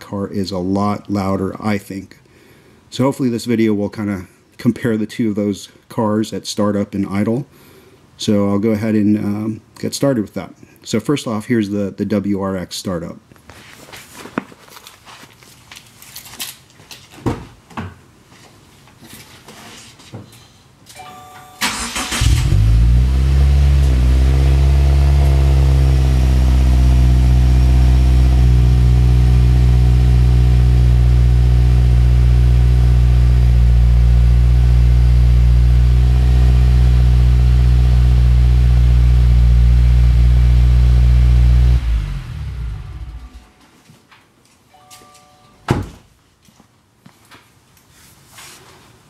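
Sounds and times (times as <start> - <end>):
car engine idling: 21.6 - 43.4.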